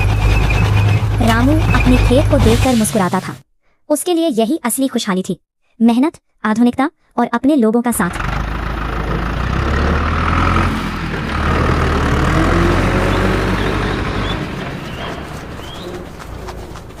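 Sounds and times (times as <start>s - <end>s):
large vehicle engine rumbling: 0.0s - 3.3s, 7.9s - 17.0s.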